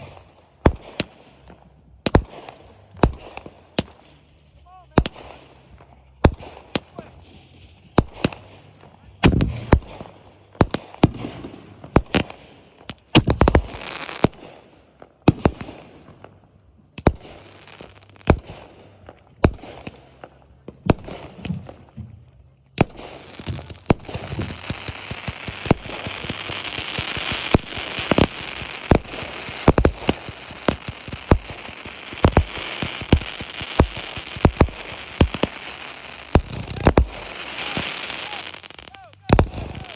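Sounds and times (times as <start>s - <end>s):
fireworks bangs: 3.0s - 12.4s, 13.1s - 14.5s, 17.0s - 18.7s, 22.8s - 39.9s
fireworks crackling: 3.0s - 14.4s, 17.0s - 18.7s, 22.8s - 39.9s.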